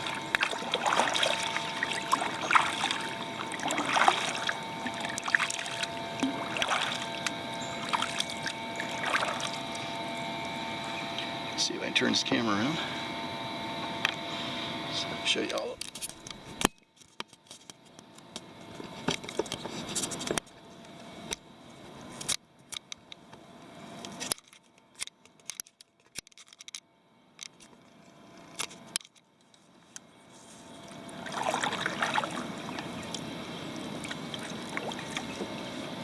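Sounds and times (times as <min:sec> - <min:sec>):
paddle splashing water: 0:00.0 - 0:09.9, 0:30.8 - 0:33.2, 0:34.0 - 0:36.0.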